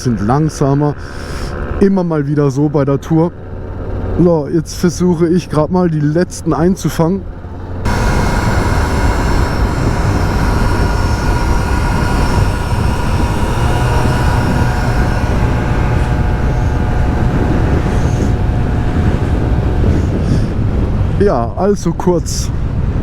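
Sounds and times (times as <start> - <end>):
scooter engine droning: 0.0 - 4.8, 6.3 - 21.3
wind rush on microphone: 7.9 - 23.0.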